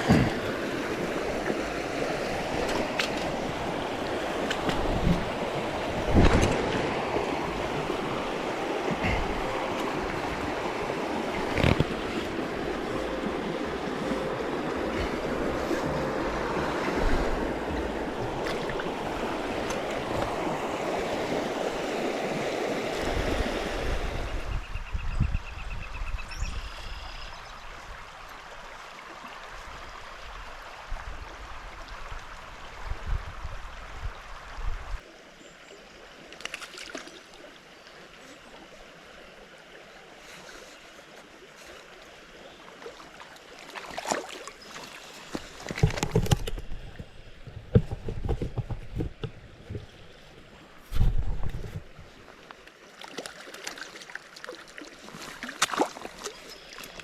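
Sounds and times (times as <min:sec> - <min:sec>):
knocks and splashes: 0:00.0 - 0:21.5, 0:36.4 - 0:37.2, 0:42.8 - 0:52.1, 0:53.0 - 0:57.0
stream rushing: 0:00.0 - 0:24.5, 0:36.0 - 0:57.0.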